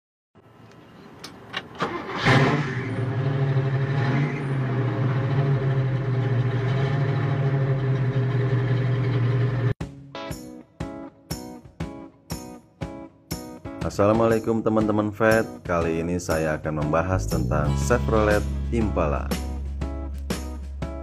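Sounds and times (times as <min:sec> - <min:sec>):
car engine starting and running: 0:00.5 - 0:09.8
plucked guitar music: 0:09.8 - 0:13.8, 0:16.8 - 0:21.0.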